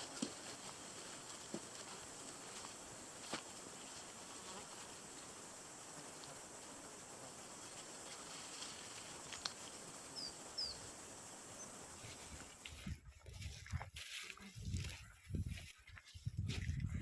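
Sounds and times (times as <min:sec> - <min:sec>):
outdoor background hiss: 0:00.0 - 0:14.3
bird chirps: 0:10.2 - 0:10.9.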